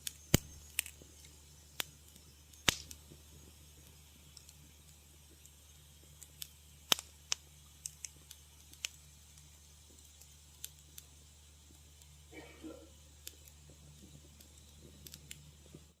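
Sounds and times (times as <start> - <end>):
steady low hum: 0.0 - 16.0
wood fire crackling and popping: 0.0 - 16.0.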